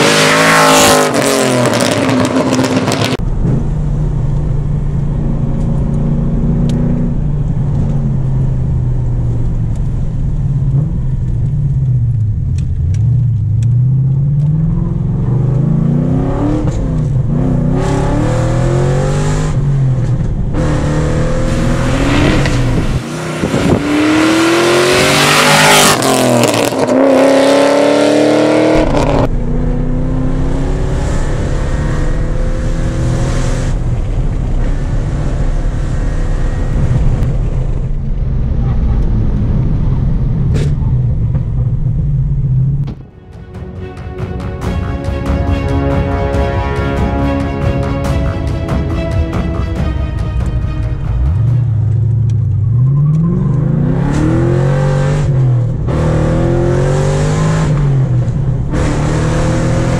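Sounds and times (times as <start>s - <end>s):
car engine revving while driving: 0.0s - 3.8s, 5.3s - 9.1s, 10.5s - 37.3s, 52.0s - 59.9s.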